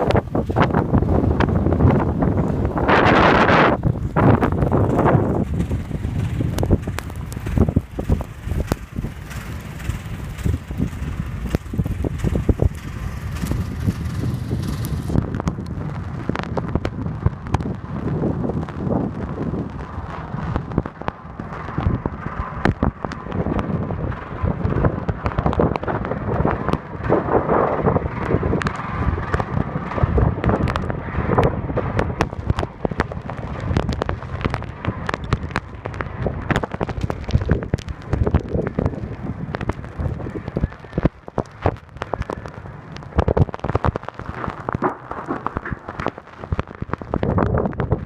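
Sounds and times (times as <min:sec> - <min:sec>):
sharp crackles and clicks: 0:00.0 - 0:48.0
wind buffeting microphone: 0:00.0 - 0:48.0.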